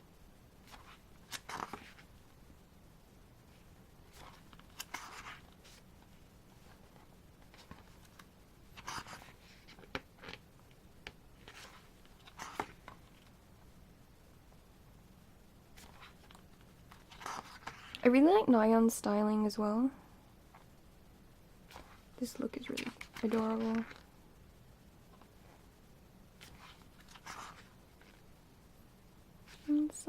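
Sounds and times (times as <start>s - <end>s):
photo album pages rustling: 0.6s - 2.2s, 3.5s - 13.4s, 15.7s - 18.1s, 21.7s - 24.1s, 26.4s - 28.3s, 29.4s - 30.0s.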